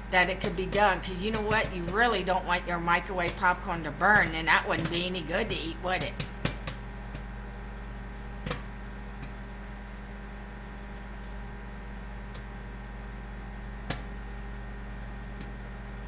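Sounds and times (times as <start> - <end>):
microwave oven humming: 0.0 - 16.0
popcorn kernels popping: 0.1 - 7.4.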